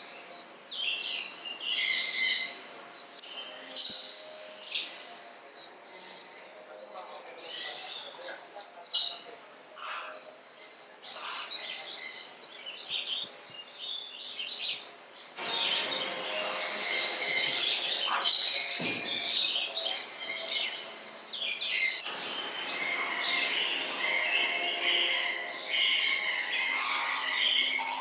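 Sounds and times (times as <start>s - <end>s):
small birds chirping and twittering: 0.0s - 28.0s.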